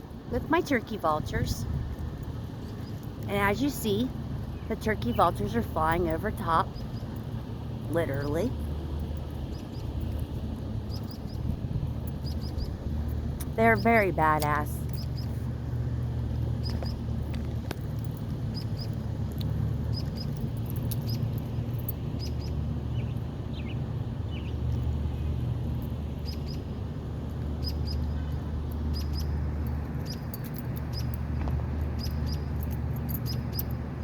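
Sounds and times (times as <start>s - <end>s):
steady low rumble: 0.0s - 34.0s
small bird chirping: 10.9s - 11.6s, 12.2s - 12.8s, 27.6s - 29.4s, 30.0s - 31.2s, 32.0s - 33.8s.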